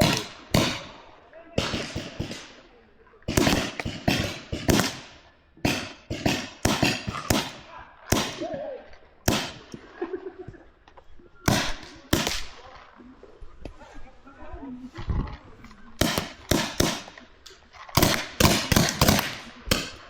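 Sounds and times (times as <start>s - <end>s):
paintball markers firing: 0.0s - 1.0s, 1.6s - 2.5s, 3.3s - 8.5s, 9.2s - 9.8s, 11.5s - 12.7s, 16.0s - 20.0s.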